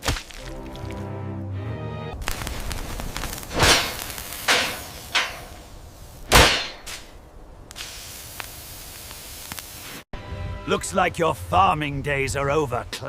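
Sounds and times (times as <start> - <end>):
steady hiss: 2.2 - 10.1.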